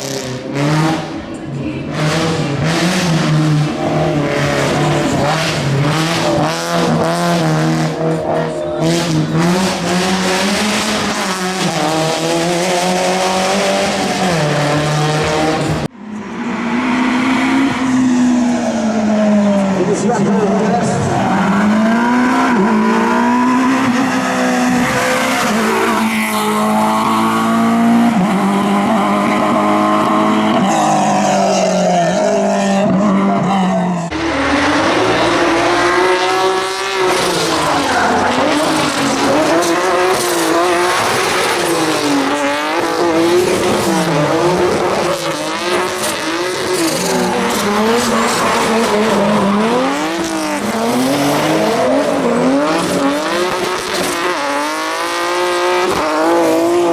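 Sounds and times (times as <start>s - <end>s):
race car engine revving: 0.0s - 56.9s.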